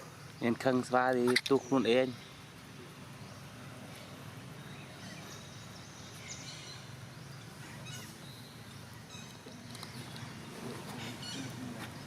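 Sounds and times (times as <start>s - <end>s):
steady outdoor background: 0.0s - 12.0s
high-pitched chirping calls: 1.2s - 2.4s.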